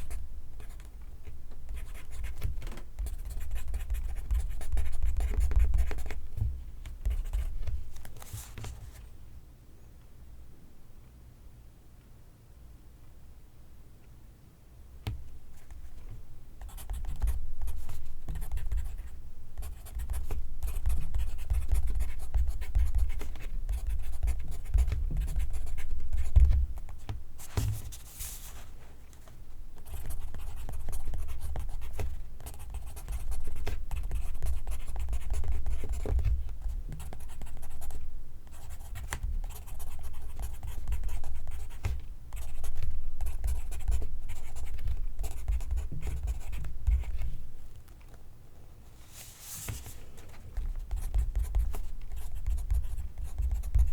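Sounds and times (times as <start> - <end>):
pencil writing on paper: 29.8 - 47.3, 50.8 - 53.9.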